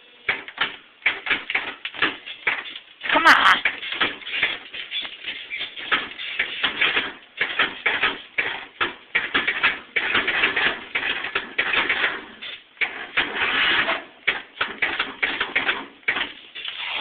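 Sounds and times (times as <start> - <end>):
engine cranking without starting: 3.6 - 17.0.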